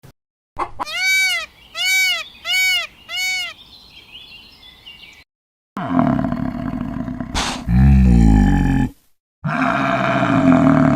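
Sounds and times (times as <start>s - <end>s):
animal crying: 0.8s - 3.6s.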